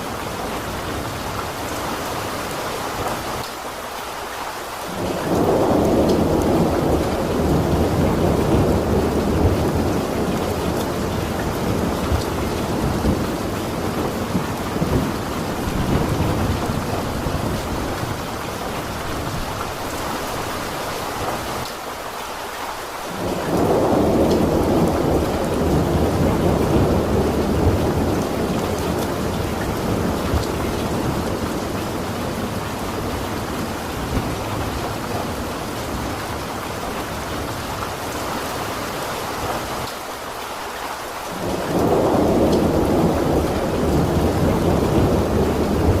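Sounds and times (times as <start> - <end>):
steady rain: 0.0 - 46.0
rolling thunder: 4.9 - 19.6, 23.2 - 36.5, 41.3 - 46.0.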